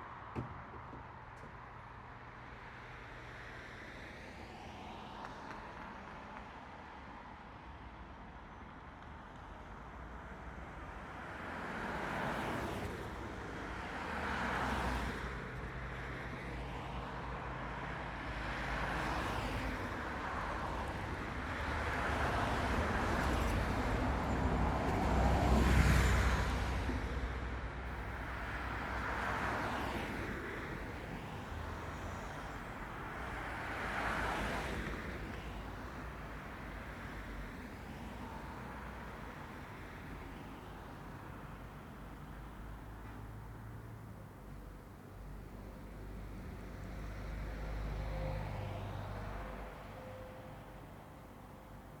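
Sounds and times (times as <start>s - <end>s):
cars passing: 27.8s - 52.0s
low traffic hum: 27.8s - 52.0s.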